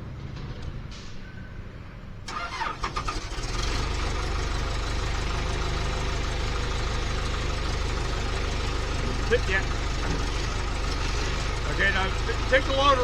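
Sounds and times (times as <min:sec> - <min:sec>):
engine cranking and idling: 0:02.2 - 0:13.0.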